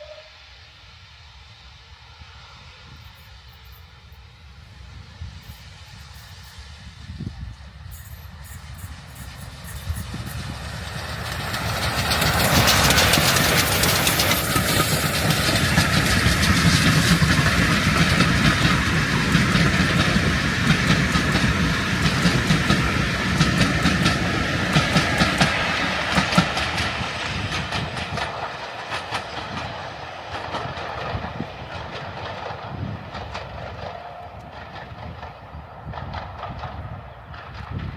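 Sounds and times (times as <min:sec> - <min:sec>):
steam train passing: 0:00.0 - 0:37.9
wheels clattering over rail joints: 0:10.3 - 0:37.9.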